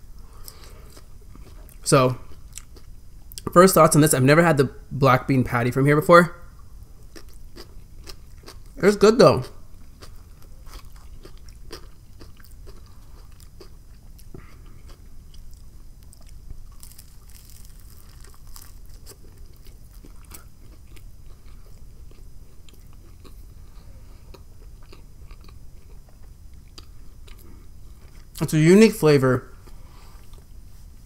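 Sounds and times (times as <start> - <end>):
crusty bread crunching: 7.0 - 23.4.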